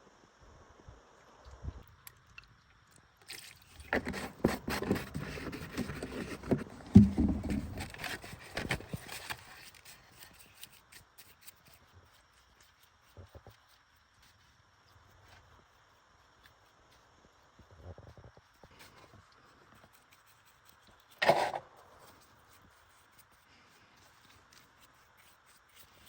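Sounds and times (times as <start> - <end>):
scraping and knocking: 3.9 - 9.2.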